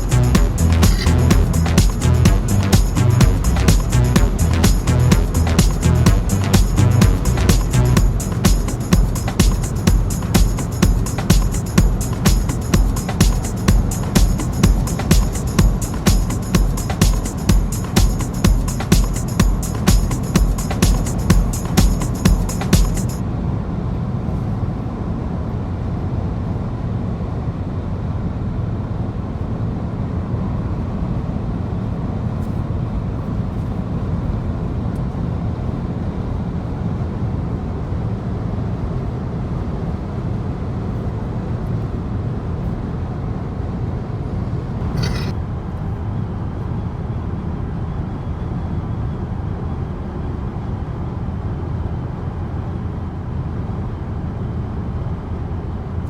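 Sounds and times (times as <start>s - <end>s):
car road and engine rumble: 0.0s - 17.0s
sharp click: 45.0s - 45.3s.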